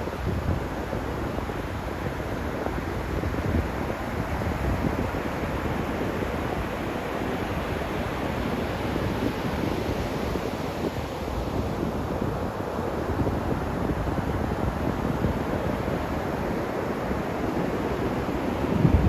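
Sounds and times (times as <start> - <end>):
wind: 0.0 - 19.0
wind buffeting microphone: 11.6 - 19.0.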